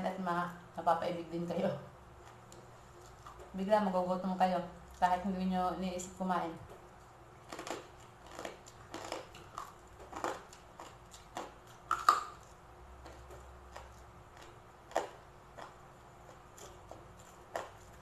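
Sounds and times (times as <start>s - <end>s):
chewing crispy food: 2.2s - 3.6s, 6.8s - 18.0s.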